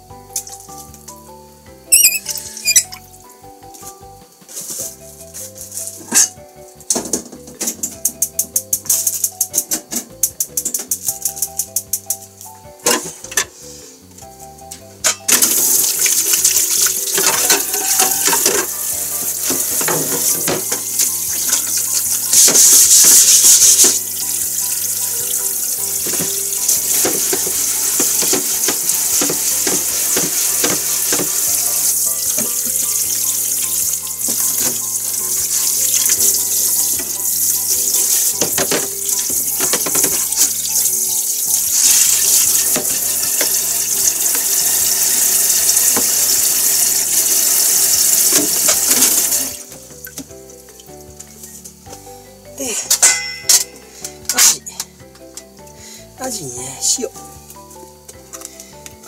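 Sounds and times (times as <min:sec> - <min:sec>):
board and utensils clattering in sink: 0:05.9 - 0:11.3, 0:12.8 - 0:13.6, 0:15.1 - 0:24.0, 0:25.9 - 0:33.3, 0:33.9 - 0:40.7, 0:48.1 - 0:50.3, 0:52.9 - 0:53.8
tap water running into sink: 0:15.3 - 0:50.3.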